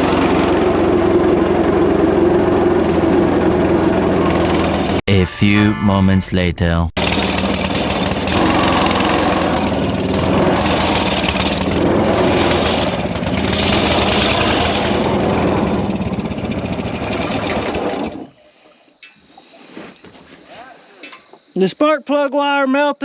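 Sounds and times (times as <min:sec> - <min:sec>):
small engine running hard: 0:00.0 - 0:05.0, 0:07.0 - 0:18.2.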